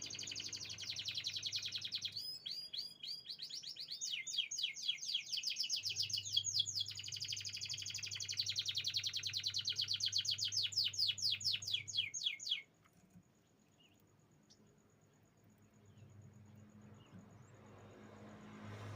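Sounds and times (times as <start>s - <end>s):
canary singing trills: 0.0s - 14.7s.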